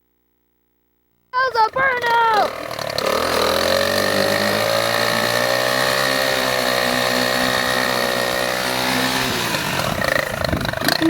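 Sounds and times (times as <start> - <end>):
car engine revving: 2.5 - 11.0.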